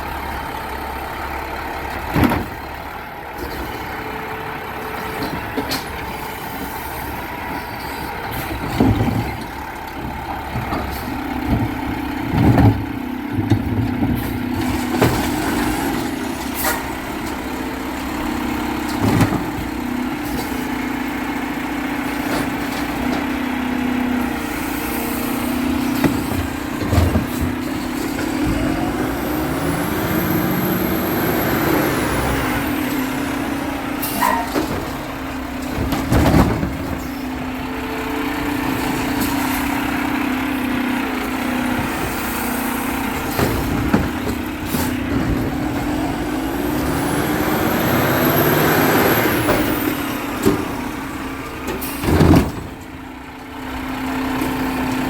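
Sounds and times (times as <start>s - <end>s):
garbage truck engine running: 0.0s - 55.0s.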